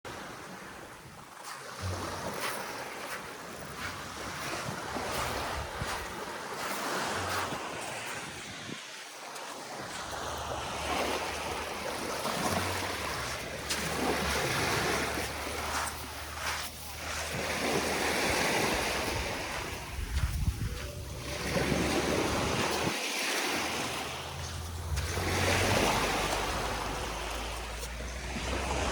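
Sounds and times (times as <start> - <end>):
sea waves washing on beach: 0.1 - 28.9
wind buffeting microphone: 3.7 - 8.9, 17.2 - 28.9.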